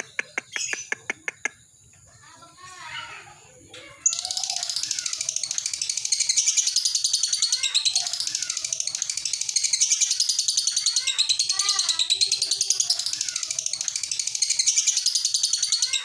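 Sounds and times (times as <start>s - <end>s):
bird high-pitched chattering trill: 0.0s - 16.0s
lower curving bird chirps: 4.0s - 16.0s.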